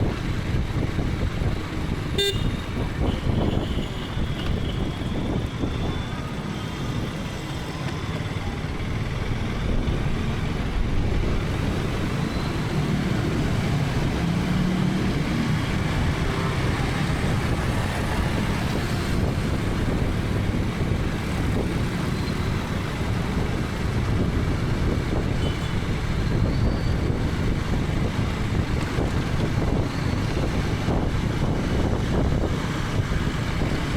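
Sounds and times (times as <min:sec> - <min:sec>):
wind and road noise: 0:00.0 - 0:33.9
vehicle horn toot: 0:02.2 - 0:04.9.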